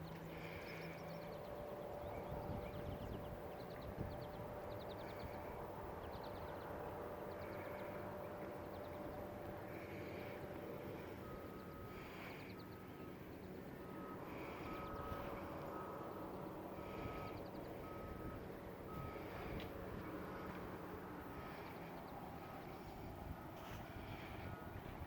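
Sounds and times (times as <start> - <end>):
birds chirping: 0.0 - 25.0
distant traffic hum: 0.0 - 25.0
vehicle reversing beeper: 8.6 - 24.9.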